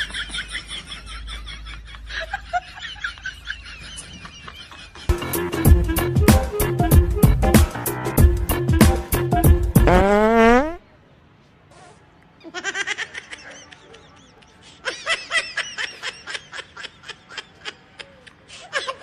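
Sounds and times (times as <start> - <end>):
high-pitched giggling laughter: 12.4 - 19.0.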